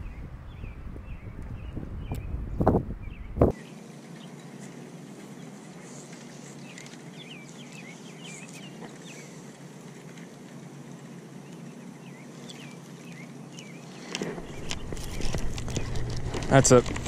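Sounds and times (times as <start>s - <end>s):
small birds chirping: 0.0s - 17.0s
steady low background noise: 3.0s - 17.0s.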